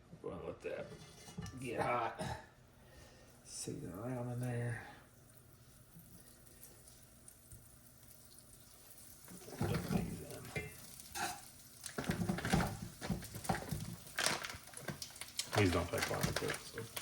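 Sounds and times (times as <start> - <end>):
scraping in a pan: 0.8 - 1.7
sprouts sizzling in a pan: 4.0 - 17.0.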